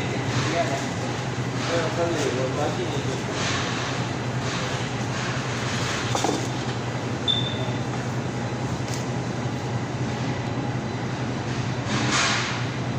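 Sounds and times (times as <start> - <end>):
short high beep: 7.3 - 7.6.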